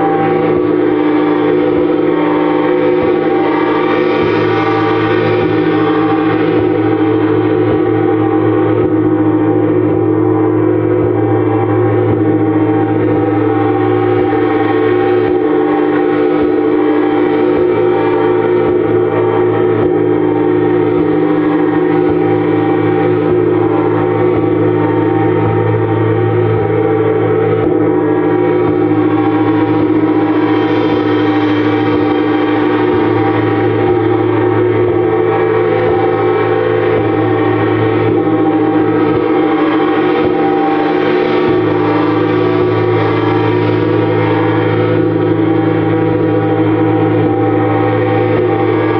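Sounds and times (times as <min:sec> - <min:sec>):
gong ringing: 0:00.0 - 0:48.9.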